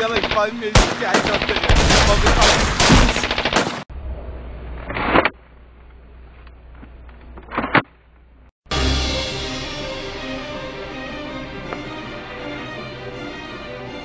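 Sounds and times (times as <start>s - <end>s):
rapid automatic gunfire: 0.0s - 3.8s
low hum: 3.9s - 13.3s
music: 8.6s - 14.0s.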